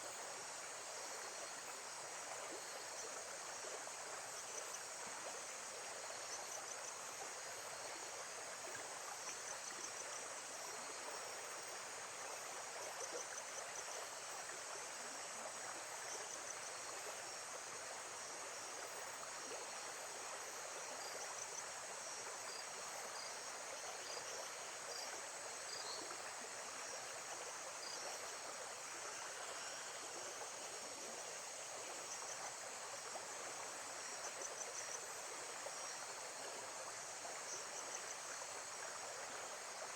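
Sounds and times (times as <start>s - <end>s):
faint high insect chirps: 0.0s - 39.9s
flowing water: 0.0s - 39.9s.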